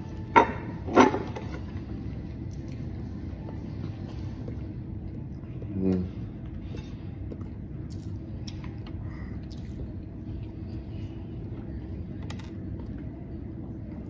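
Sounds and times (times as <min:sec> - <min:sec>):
person chewing: 0:07.3 - 0:10.0.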